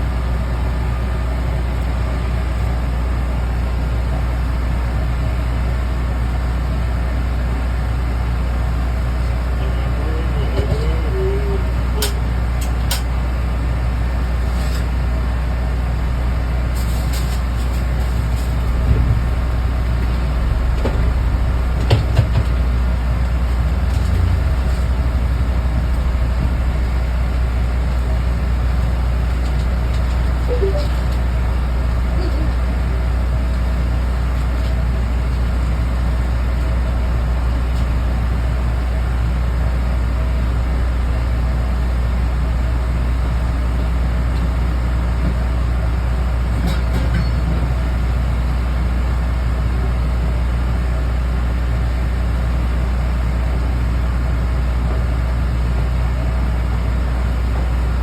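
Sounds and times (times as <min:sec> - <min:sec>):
low machine drone: 0:00.0 - 0:44.9, 0:52.4 - 0:58.0
knocks and clatters: 0:16.8 - 0:27.2.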